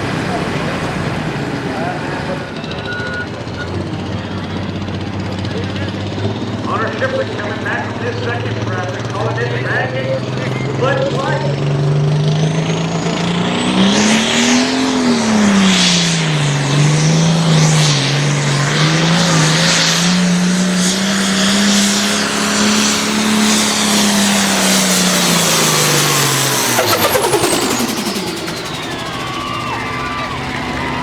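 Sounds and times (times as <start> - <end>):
tractor engine running hard: 0.0 - 31.0
high whine winding down: 11.2 - 31.0.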